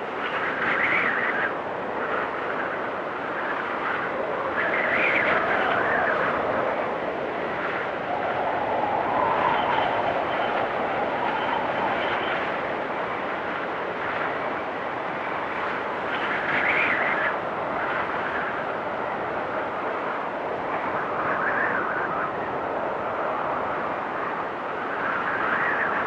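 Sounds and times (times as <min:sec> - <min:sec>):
storm wind with whistling gusts: 0:00.0 - 0:26.0.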